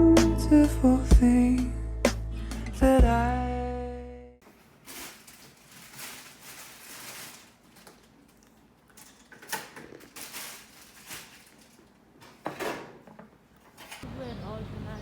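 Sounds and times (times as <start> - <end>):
rustling handling noises: 4.4 - 14.0.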